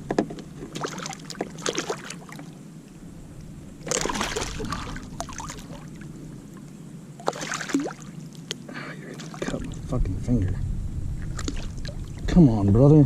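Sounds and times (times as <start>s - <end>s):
fish splashing in water: 0.6s - 2.6s, 3.8s - 6.1s, 7.2s - 8.2s, 9.1s - 9.8s, 11.2s - 12.2s.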